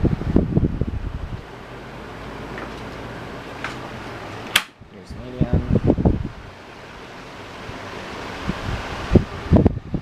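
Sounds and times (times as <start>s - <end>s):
faint motor hum: 0.0s - 10.0s
table fan air rush: 5.5s - 10.0s.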